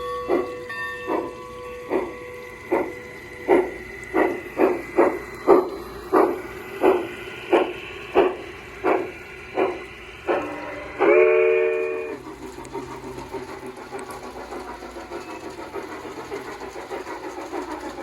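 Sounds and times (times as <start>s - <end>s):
model locomotive steam chuffs: 0.0s - 18.0s.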